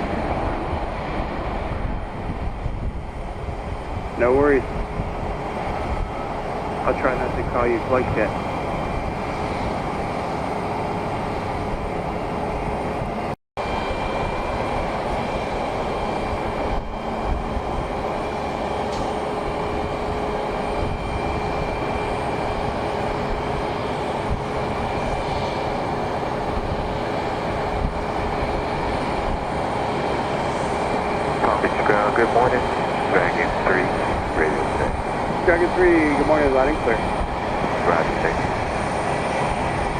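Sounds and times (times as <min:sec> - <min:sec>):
aircraft engines rumbling: 0:00.0 - 0:39.9
faint steady whine: 0:31.2 - 0:37.2.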